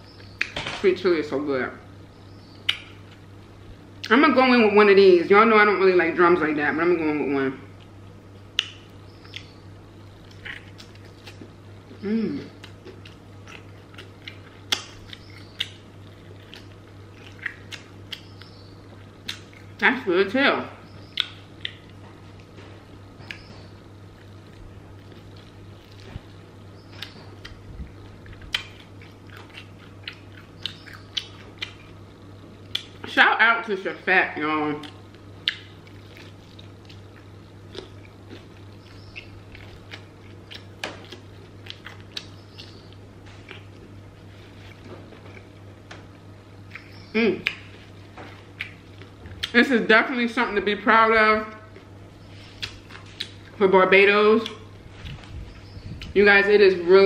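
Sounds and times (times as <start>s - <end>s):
faint low hum: 0.0s - 57.0s
chewing crispy chicken: 7.8s - 19.8s, 20.9s - 33.1s, 34.8s - 49.6s
crispy breading crunches: 34.8s - 45.6s
wet mouth clicks: 46.7s - 47.7s, 52.6s - 53.4s.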